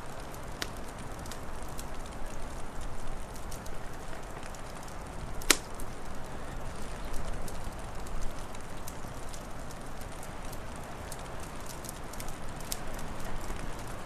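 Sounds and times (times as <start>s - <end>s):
wood fire crackling: 0.0s - 14.0s
loud fire pop: 5.4s - 5.8s.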